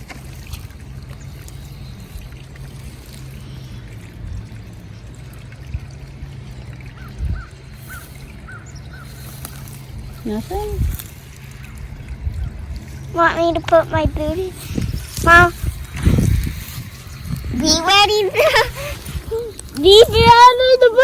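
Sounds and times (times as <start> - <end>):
creek water trickling: 0.0 - 21.0.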